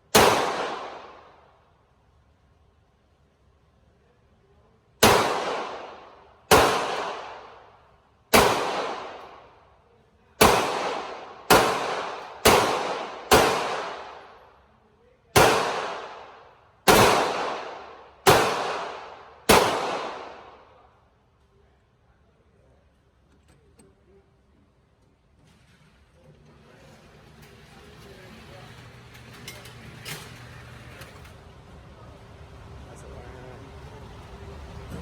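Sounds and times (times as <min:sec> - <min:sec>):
pistol shots echoing: 0:00.0 - 0:01.5, 0:05.0 - 0:09.6, 0:10.4 - 0:14.5, 0:15.4 - 0:20.8.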